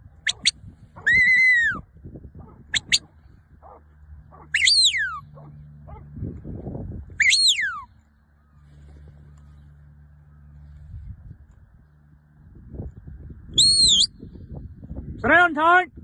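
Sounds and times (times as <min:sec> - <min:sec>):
low steady hum: 0:00.0 - 0:15.3
dog yelping: 0:00.3 - 0:01.8, 0:02.4 - 0:06.1, 0:07.2 - 0:07.9.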